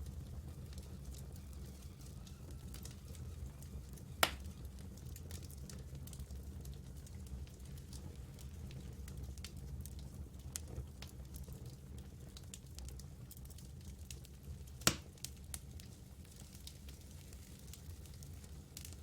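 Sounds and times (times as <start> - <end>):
campfire crackling: 0.0 - 19.0
sharp pop of fire: 4.2 - 4.5, 14.8 - 15.1.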